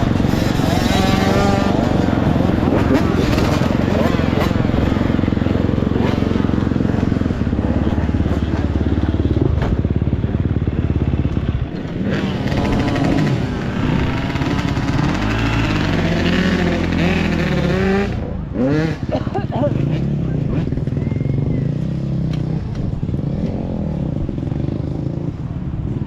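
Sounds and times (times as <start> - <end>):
dirt bike engine revving: 0.0 - 10.1, 10.8 - 19.2.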